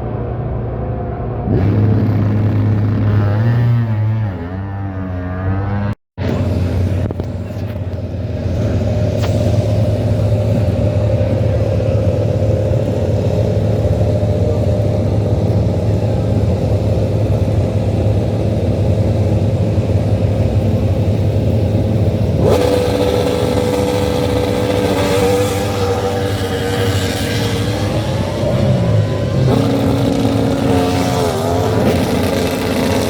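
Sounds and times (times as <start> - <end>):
car engine and road noise: 0.0 - 33.0.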